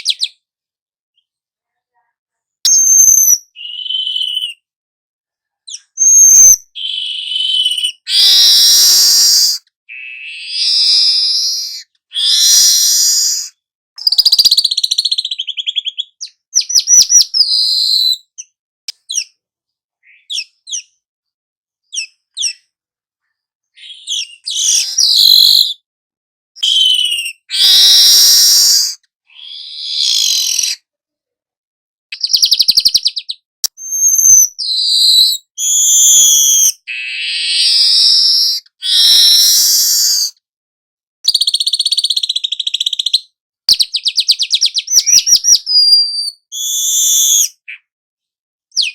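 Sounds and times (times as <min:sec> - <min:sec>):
lure recordings of bird calls: 0:00.0 - 0:00.4, 0:02.7 - 0:04.7, 0:05.6 - 0:19.4, 0:20.0 - 0:21.0, 0:21.8 - 0:25.8, 0:26.6 - 0:30.9, 0:32.1 - 0:40.4, 0:41.3 - 0:47.9
weaver bird singing: 0:02.7 - 0:04.6, 0:05.7 - 0:19.4, 0:20.0 - 0:21.0, 0:21.9 - 0:22.7, 0:23.7 - 0:25.8, 0:26.6 - 0:30.8, 0:32.2 - 0:40.3, 0:41.3 - 0:47.9.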